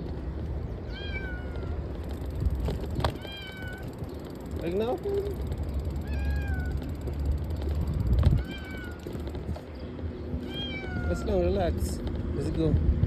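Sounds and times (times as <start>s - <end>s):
cat meowing: 10.4s - 11.3s.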